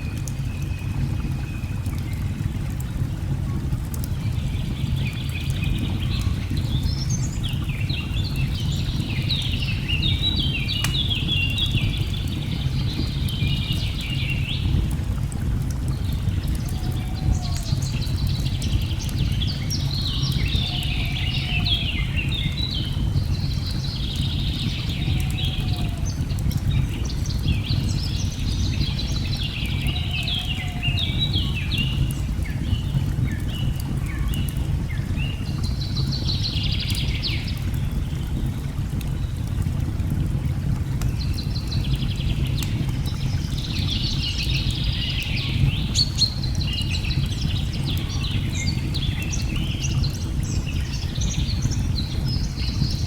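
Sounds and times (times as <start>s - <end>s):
rush of falling water: 0.0s - 53.0s
wood fire crackling: 0.1s - 28.0s, 29.0s - 36.2s, 36.9s - 53.0s
birds chirping: 16.0s - 38.3s.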